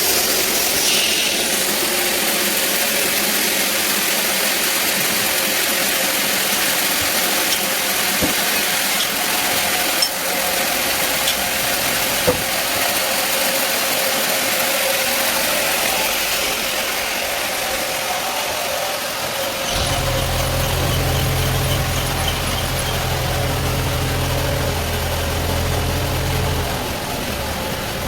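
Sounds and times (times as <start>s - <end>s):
band saw hiss: 0.0s - 2.4s.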